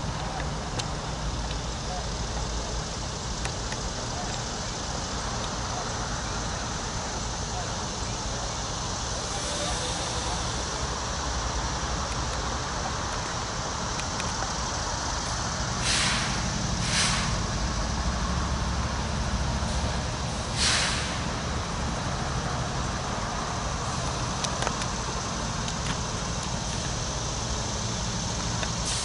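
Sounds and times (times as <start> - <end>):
diesel train engine running: 0.0 - 29.0
air brakes hissing: 4.6 - 11.8, 14.6 - 24.4, 25.0 - 29.0.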